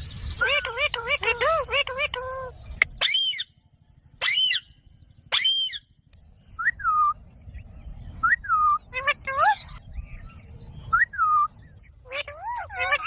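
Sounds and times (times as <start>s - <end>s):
parrot shrill calls: 0.4s - 3.6s, 4.2s - 5.9s, 11.2s - 13.0s
parrot whistled call: 5.3s - 5.9s.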